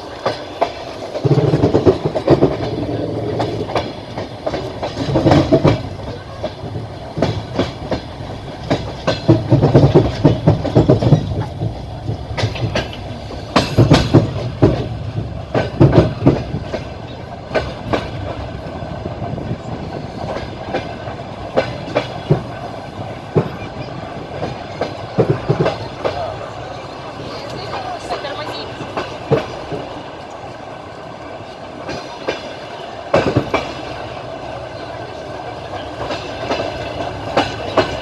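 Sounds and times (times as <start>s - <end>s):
train wheels clattering over rails: 0.0s - 38.0s.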